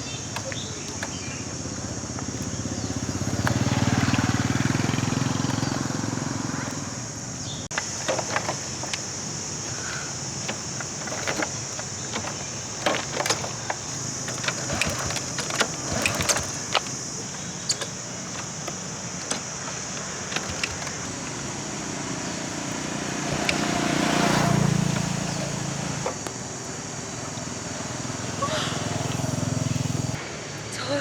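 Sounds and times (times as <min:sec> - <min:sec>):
kickstart lever clanking: 0:00.0 - 0:04.4, 0:07.7 - 0:21.6, 0:22.4 - 0:26.3
low engine rumble: 0:00.0 - 0:30.2.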